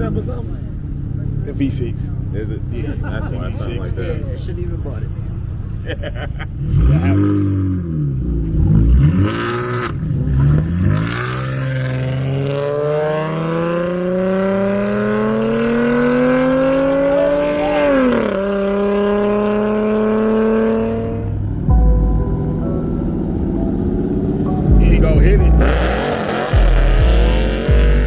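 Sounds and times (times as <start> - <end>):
car engine accelerating: 0.0 - 28.0
loud low rumble: 21.2 - 28.0.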